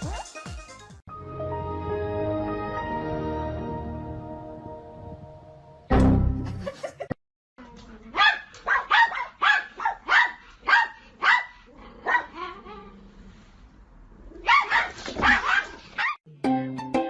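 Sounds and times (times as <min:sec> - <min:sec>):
dog barking: 0:08.2 - 0:12.6, 0:14.4 - 0:16.2.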